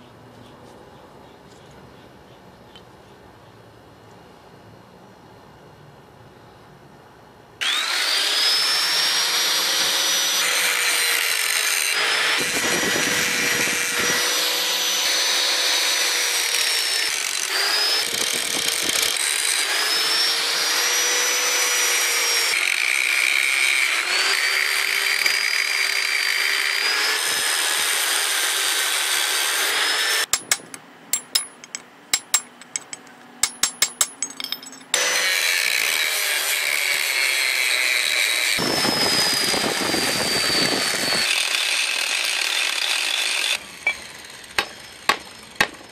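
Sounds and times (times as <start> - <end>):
angle grinder cutting metal: 7.6 - 45.9
hammer striking steel punch: 30.3 - 35.0, 43.8 - 44.0, 44.6 - 45.9.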